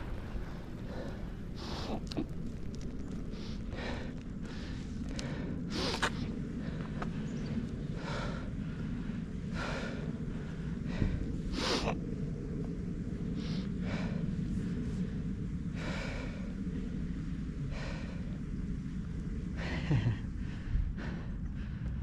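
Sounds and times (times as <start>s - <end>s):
cyclist breathing hard: 0.0s - 22.0s
steady low rumble: 0.0s - 22.0s.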